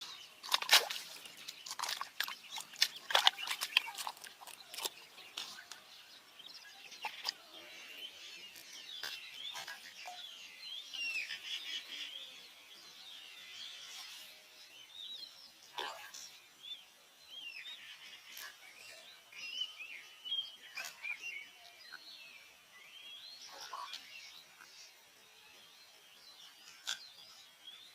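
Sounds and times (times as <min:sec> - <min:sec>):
small birds chirping: 0:00.0 - 0:27.9
bird swallowing fish clicks: 0:00.4 - 0:05.8.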